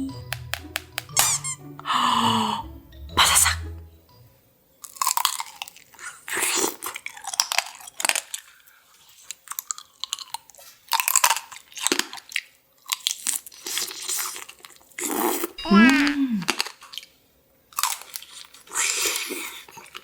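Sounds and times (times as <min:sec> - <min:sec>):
candy shell crunching between teeth: 0:04.8 - 0:08.5, 0:09.2 - 0:17.1, 0:17.7 - 0:20.0.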